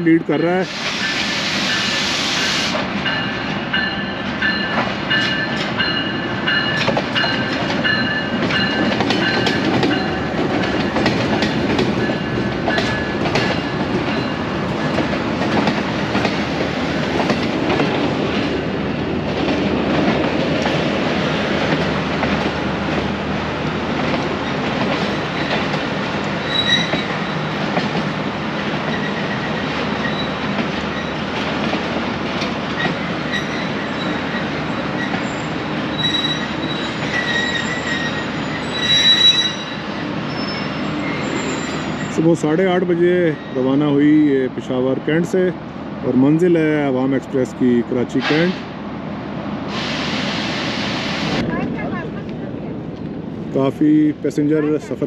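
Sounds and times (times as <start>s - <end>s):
train rumbling: 0.0s - 55.0s
wheels clacking over rail joints: 3.0s - 23.2s.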